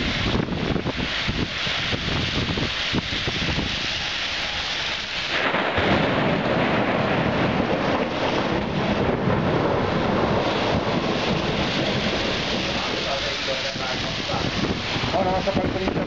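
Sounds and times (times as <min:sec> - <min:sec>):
gusting wind: 0:00.0 - 0:16.0
heavy rain: 0:00.0 - 0:16.0.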